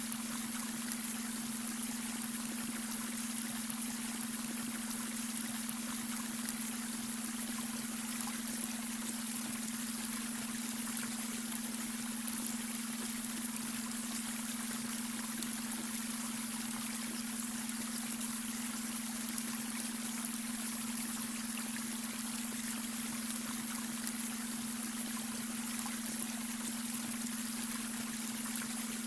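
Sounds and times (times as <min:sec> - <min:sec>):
brook water trickling over stones: 0:00.0 - 0:29.0.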